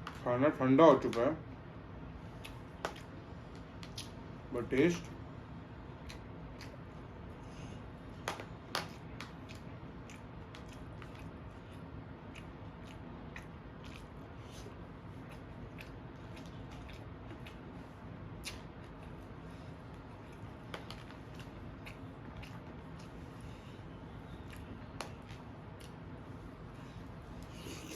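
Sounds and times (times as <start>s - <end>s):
person chewing food: 2.2s - 3.2s, 5.9s - 7.8s, 8.8s - 27.9s.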